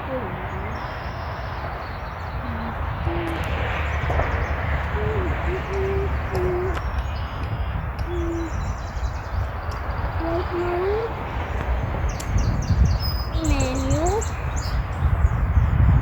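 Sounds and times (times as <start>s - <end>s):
steady low rumble: 0.0s - 16.0s
low hooting bird calls: 0.1s - 11.1s.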